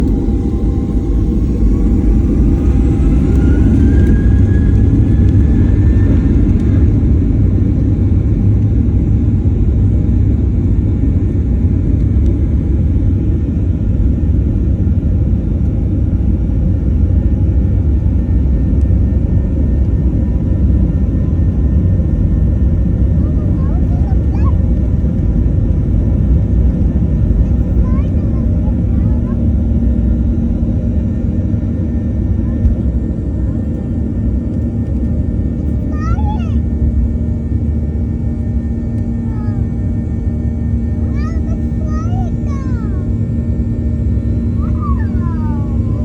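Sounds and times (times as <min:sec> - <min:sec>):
jet engines rumbling and whining: 0:00.0 - 0:46.0.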